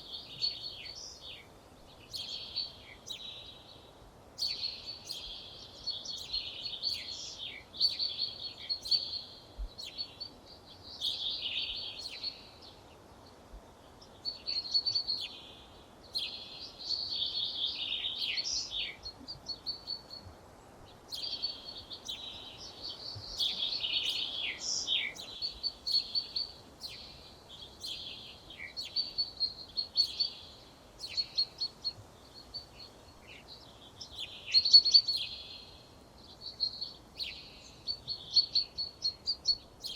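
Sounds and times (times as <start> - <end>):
faint background noise: 0.0 - 39.9
songbird singing: 0.0 - 39.9.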